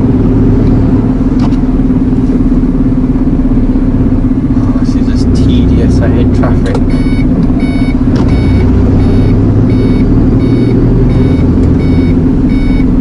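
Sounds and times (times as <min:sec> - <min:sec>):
truck diesel engine running: 0:00.0 - 0:13.0
short electronic beeps: 0:06.9 - 0:13.0.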